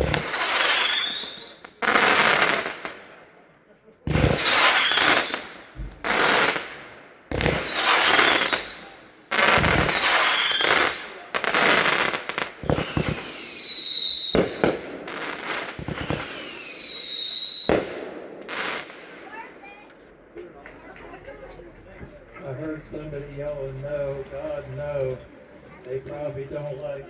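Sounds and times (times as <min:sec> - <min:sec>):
falling firework whistles: 0:00.0 - 0:02.6, 0:04.1 - 0:06.7, 0:07.3 - 0:18.9
fireworks booming and crackling: 0:00.0 - 0:25.2.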